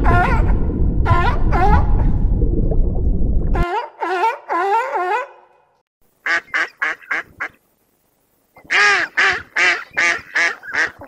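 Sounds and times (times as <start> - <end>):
waterfowl honking calls: 6.2 - 7.6, 8.6 - 11.0.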